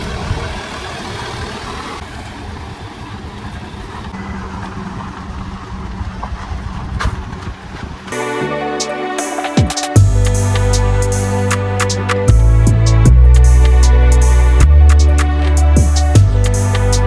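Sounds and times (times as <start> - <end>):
motor vehicle engine rumble: 10.0 - 17.0.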